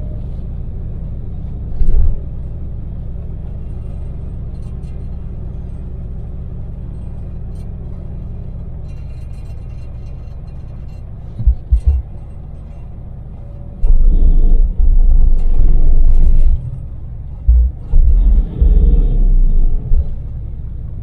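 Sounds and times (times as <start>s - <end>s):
loud rough low rumbling: 0.0s - 21.0s
van engine and road rumble: 0.0s - 21.0s
loud low thumps: 11.4s - 12.1s, 13.8s - 20.6s.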